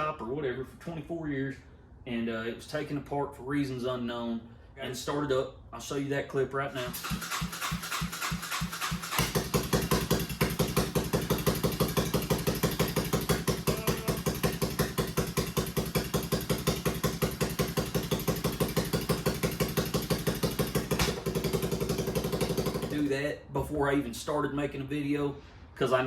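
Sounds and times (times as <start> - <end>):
motorcycle engine starting and idling: 6.7 - 23.3.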